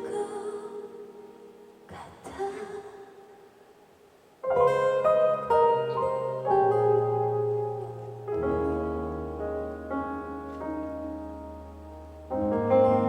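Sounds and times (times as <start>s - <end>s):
piano chords: 4.4s - 13.0s.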